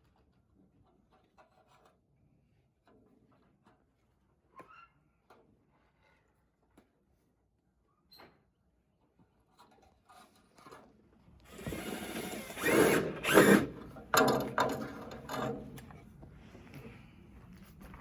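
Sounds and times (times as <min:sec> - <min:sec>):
power drill running: 0:11.5 - 0:14.8.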